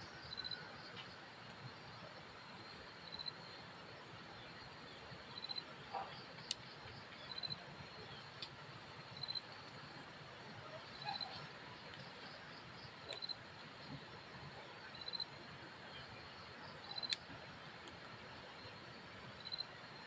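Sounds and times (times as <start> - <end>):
steady high hiss: 0.0 - 20.0
insect chirping trills: 0.2 - 0.6, 3.0 - 3.6, 5.3 - 8.2, 9.0 - 9.8, 10.7 - 13.8, 14.8 - 17.3, 18.4 - 19.8.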